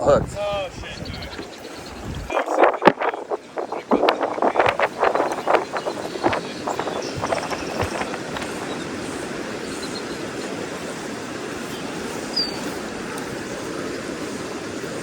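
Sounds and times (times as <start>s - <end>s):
river water rushing: 4.5s - 15.0s.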